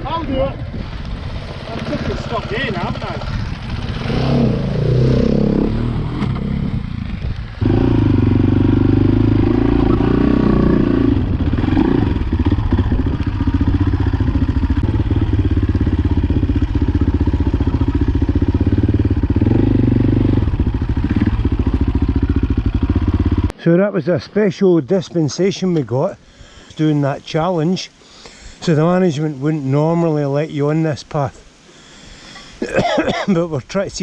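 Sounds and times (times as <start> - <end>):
motorcycle engine running: 0.0 - 23.5.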